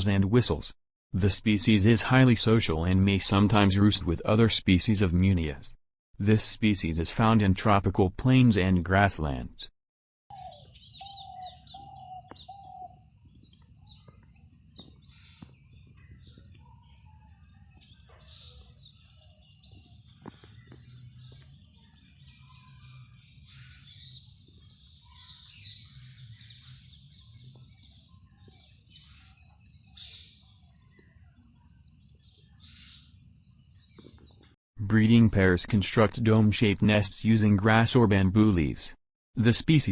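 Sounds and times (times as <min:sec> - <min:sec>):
small birds chirping: 0:10.3 - 0:34.6.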